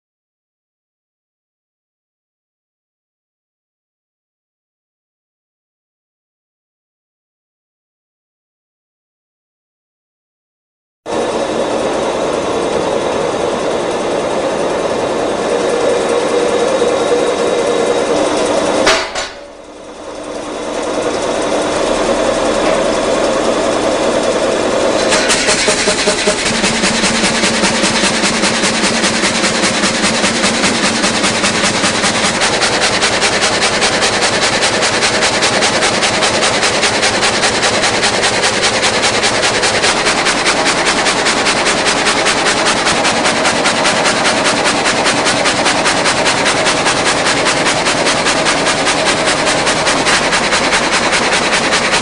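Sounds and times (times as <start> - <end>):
rip saw running: 11.1 - 52.0
fast even clatter: 15.6 - 52.0.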